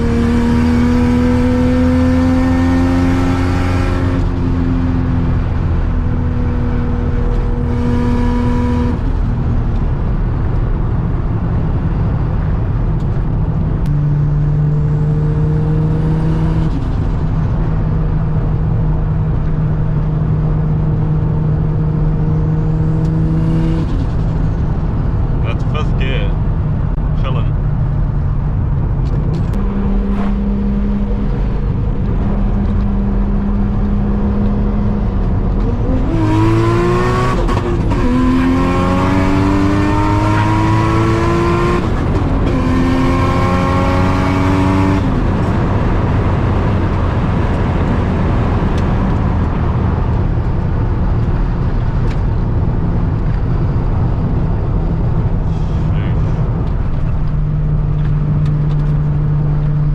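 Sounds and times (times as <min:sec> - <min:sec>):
car engine accelerating: 0:00.0 - 0:59.9.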